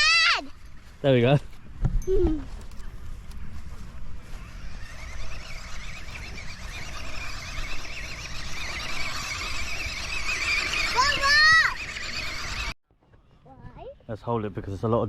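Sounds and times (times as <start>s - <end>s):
toy truck electric motor whining: 4.3s - 12.8s.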